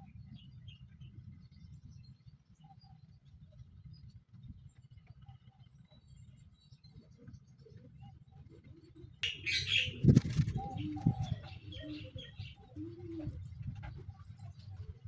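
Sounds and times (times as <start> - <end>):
birds chirping: 9.2 - 13.4
low bird calls: 9.2 - 14.8.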